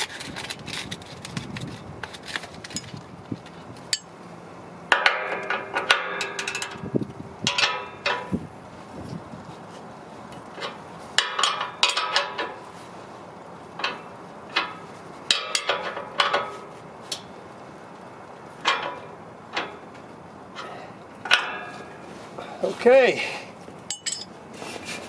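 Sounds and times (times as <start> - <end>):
metallic clinks of hand tools: 23.9 - 24.3.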